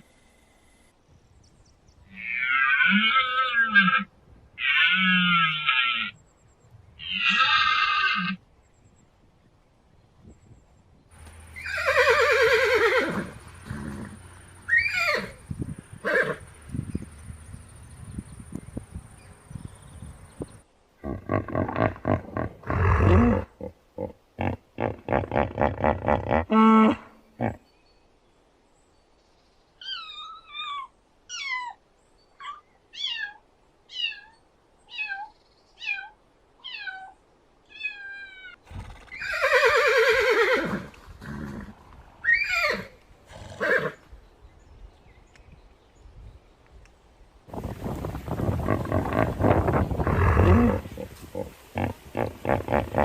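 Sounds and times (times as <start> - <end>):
animal drawn-out call: 2.1 - 6.2, 7.0 - 8.4, 48.3 - 53.0
animal grunting: 13.1 - 14.4, 21.0 - 27.6, 48.3 - 53.0.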